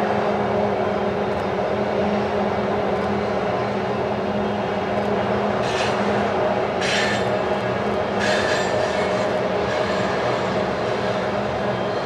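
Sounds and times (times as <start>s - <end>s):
diesel locomotives droning: 0.0s - 12.0s
metallic wheel squeal: 8.2s - 11.2s.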